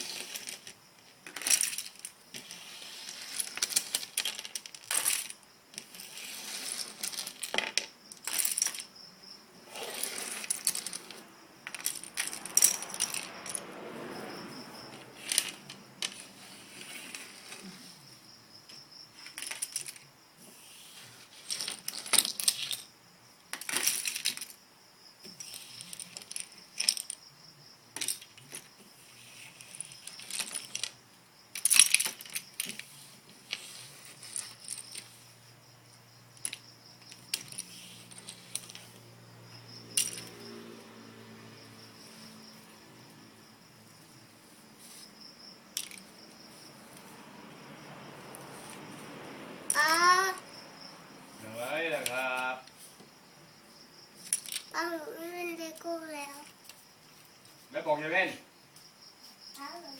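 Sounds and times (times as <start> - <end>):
plastic bricks clicking: 45.8 - 46.1.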